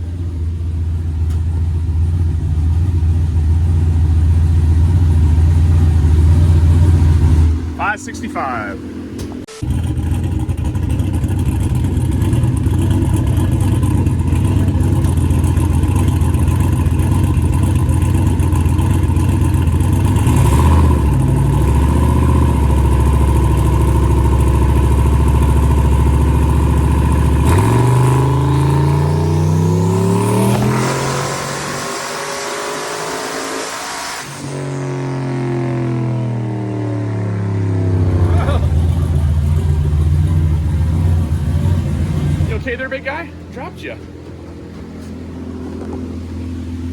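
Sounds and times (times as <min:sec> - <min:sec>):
turbo whine: 0:02.1 - 0:46.9
car engine revving on dyno: 0:08.8 - 0:42.6.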